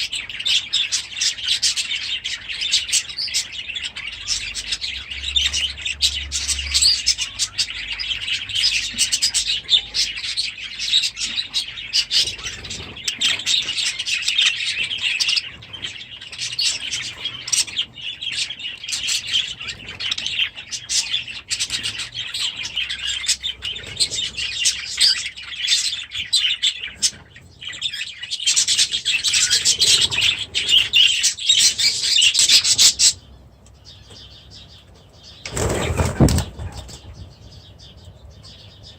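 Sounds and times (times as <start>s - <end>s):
flock of small birds chirping: 0.0s - 38.9s.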